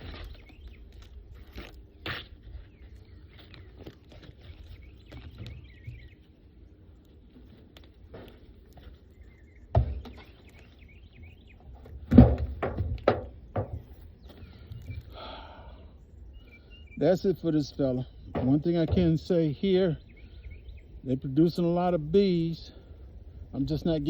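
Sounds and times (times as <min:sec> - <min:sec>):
faint bird chirps: 0:00.0 - 0:07.6, 0:08.6 - 0:11.9, 0:13.8 - 0:24.0
wooden boxes knocking: 0:09.7 - 0:10.3, 0:11.8 - 0:14.0, 0:18.3 - 0:19.4.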